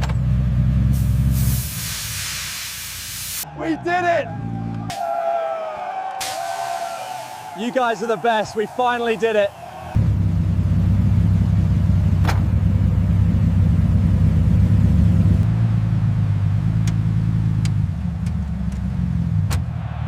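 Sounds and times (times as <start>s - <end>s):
car engine running: 9.9s - 20.0s.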